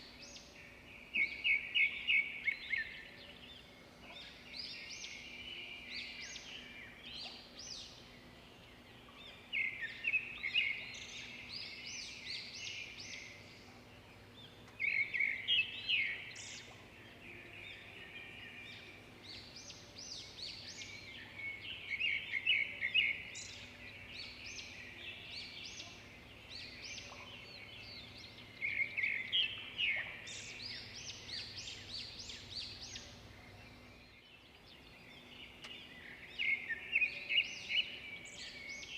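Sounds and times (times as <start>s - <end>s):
songbirds chirping and twittering: 0.0s - 38.9s.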